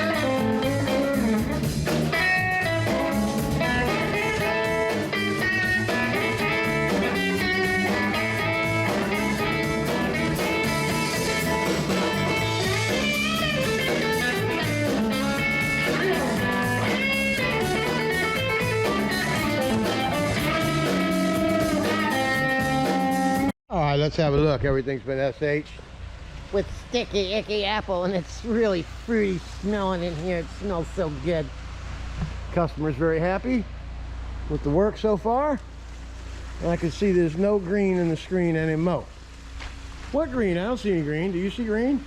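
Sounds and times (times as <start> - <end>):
blues song with electric guitar and drums: 0.0 - 23.5.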